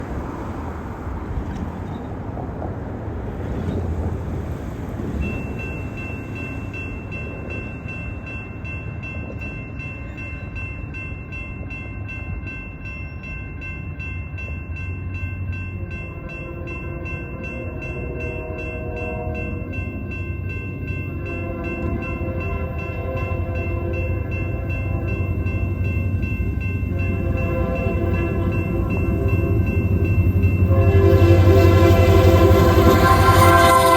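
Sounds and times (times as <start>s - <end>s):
locomotive engine rumbling: 3.2s - 33.9s
locomotive air horn: 16.2s - 19.8s, 21.2s - 25.0s, 26.9s - 33.9s.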